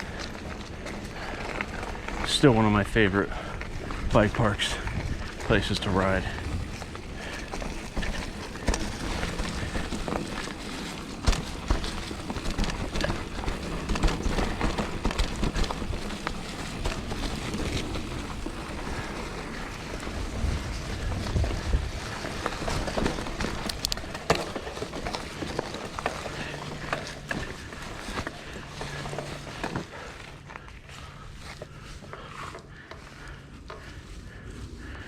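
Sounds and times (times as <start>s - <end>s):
bike rattling and knocking: 0.0s - 35.0s
bike tyres on dirt trail: 0.0s - 35.0s.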